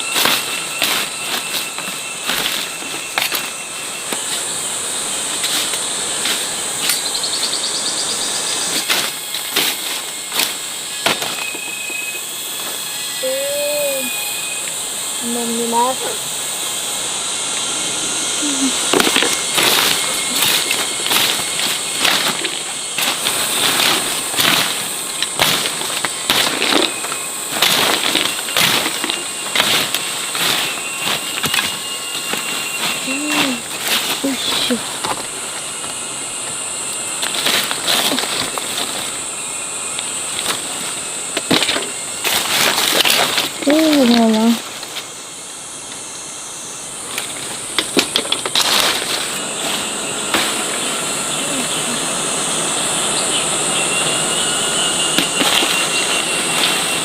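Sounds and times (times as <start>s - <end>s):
insects buzzing drone: 0.0s - 57.0s
crackles snaps and knocks: 18.9s - 32.4s.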